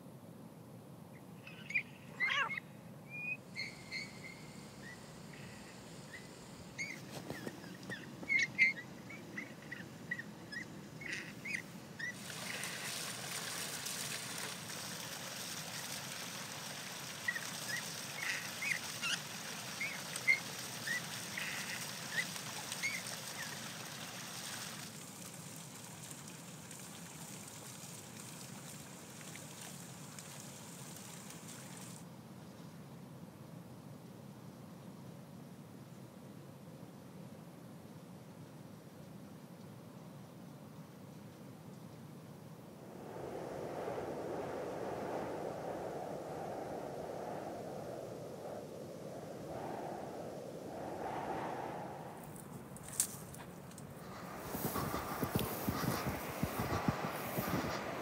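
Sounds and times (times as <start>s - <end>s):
fountain water gushing and splashing: 12.1s - 32.0s.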